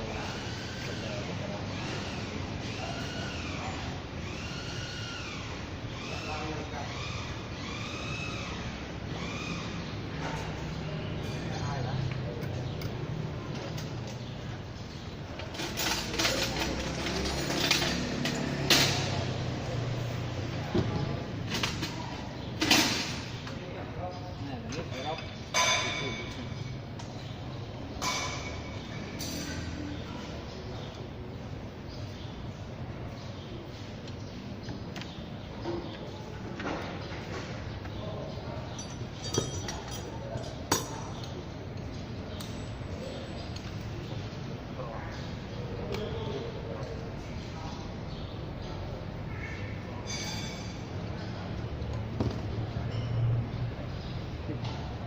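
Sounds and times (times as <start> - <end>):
metal tools clinking: 15.4 - 19.1, 38.6 - 42.9, 50.0 - 50.9.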